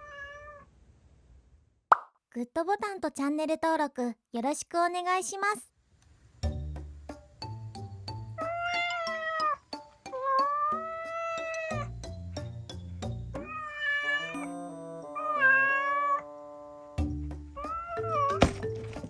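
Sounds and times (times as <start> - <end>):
cat meowing: 0.0 - 0.7, 8.4 - 11.9, 13.4 - 14.5, 15.2 - 16.3, 17.6 - 18.5
background music: 6.4 - 19.0.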